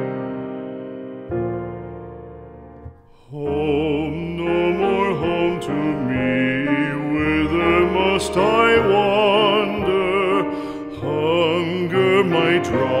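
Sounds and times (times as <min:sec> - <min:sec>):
piano accompaniment: 0:00.0 - 0:13.0
solo singer with wide vibrato: 0:03.1 - 0:13.0.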